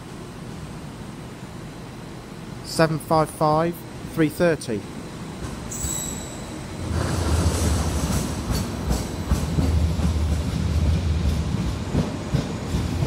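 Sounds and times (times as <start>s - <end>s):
train rumbling past: 4.8s - 13.0s.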